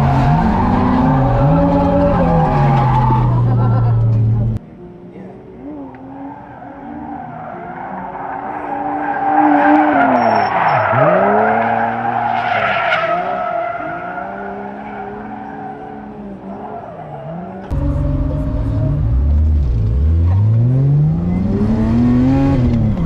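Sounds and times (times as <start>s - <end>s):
car engine revving: 0.0s - 4.6s, 5.3s - 23.0s
tyres squealing: 7.0s - 17.7s.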